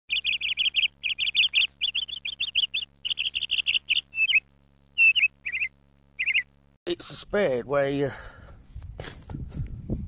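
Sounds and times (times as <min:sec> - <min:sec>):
small bird chirping: 0:00.1 - 0:06.6.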